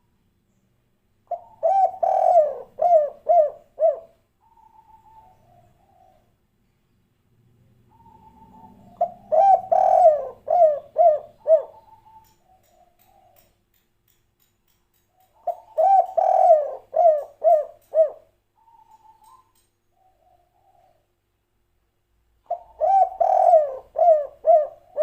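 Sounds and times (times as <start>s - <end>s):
dove cooing: 1.3s - 6.3s, 7.9s - 13.5s, 15.4s - 21.1s, 22.4s - 25.0s.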